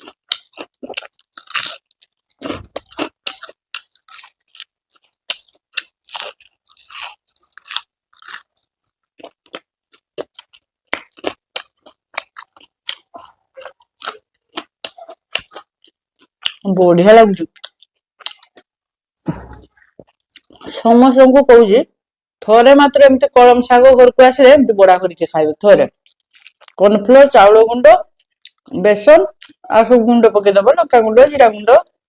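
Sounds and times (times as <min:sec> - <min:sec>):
crunching and chewing fried snack: 0:00.0 - 0:16.7, 0:17.5 - 0:18.8, 0:19.7 - 0:20.7, 0:25.9 - 0:26.8.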